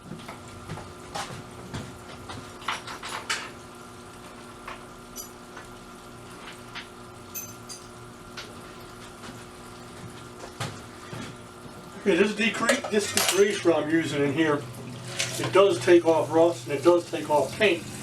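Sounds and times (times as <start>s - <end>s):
steady hum: 3.3s - 18.0s
liquid sloshing: 14.6s - 18.0s.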